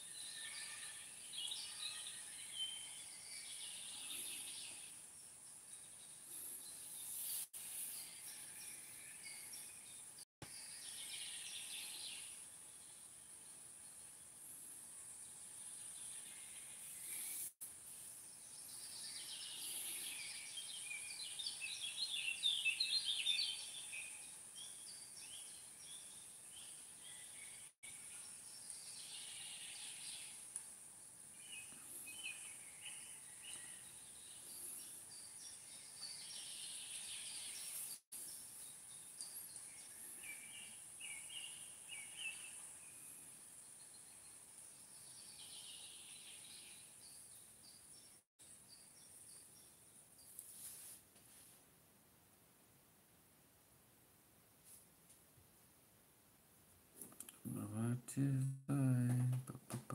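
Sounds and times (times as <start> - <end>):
birds chirping and twittering: 0.0 - 50.5
steady high-pitched hiss: 0.0 - 59.9.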